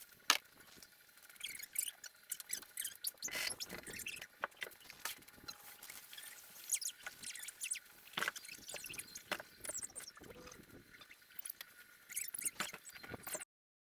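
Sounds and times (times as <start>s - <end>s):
puppies squeaking and whimpering: 1.4s - 4.3s, 12.1s - 13.4s.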